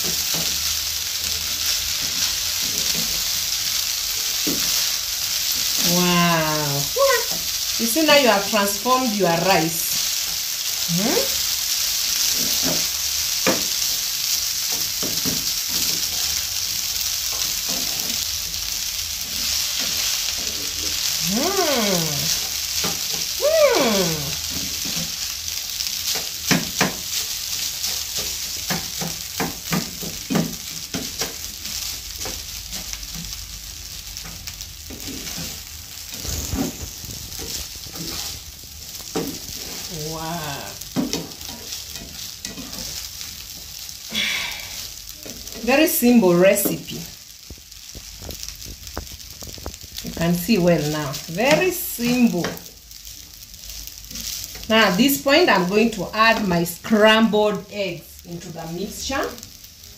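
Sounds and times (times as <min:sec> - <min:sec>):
spatula scraping and tapping pan: 0:00.0 - 0:05.8, 0:12.1 - 0:21.1, 0:22.3 - 0:23.3, 0:25.9 - 0:33.4, 0:34.2 - 0:39.9, 0:40.9 - 0:43.8, 0:46.6 - 0:50.3
rice sizzling in frying pan: 0:00.0 - 0:59.9.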